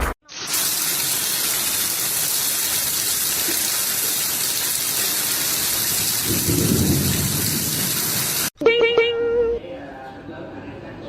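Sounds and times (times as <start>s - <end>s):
rushing water: 0.3s - 8.5s.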